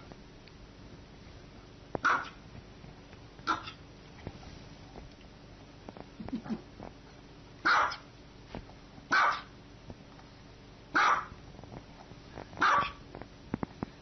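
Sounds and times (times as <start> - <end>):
small dog barking: 2.0 - 2.4, 3.4 - 3.8, 7.6 - 8.1, 9.1 - 9.5, 10.9 - 11.4, 12.6 - 13.0.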